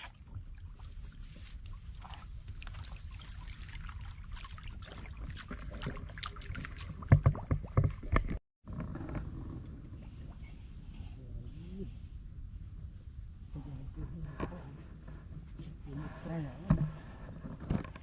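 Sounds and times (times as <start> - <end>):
water splashing in shallow floodwater: 0.0 - 8.4
steady low rumble: 9.0 - 17.1.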